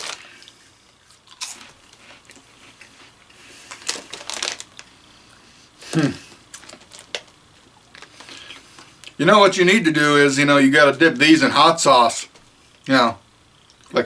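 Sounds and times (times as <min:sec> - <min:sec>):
crunchy snack chewing: 0:00.0 - 0:04.9.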